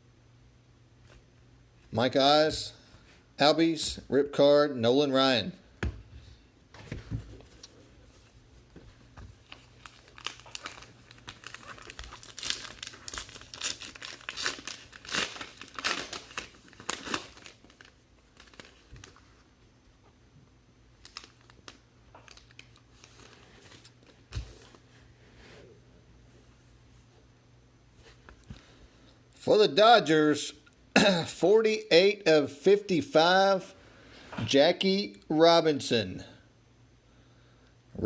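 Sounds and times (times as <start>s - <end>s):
wrapper tearing and crinkling: 9.5s - 19.2s, 21.0s - 23.9s.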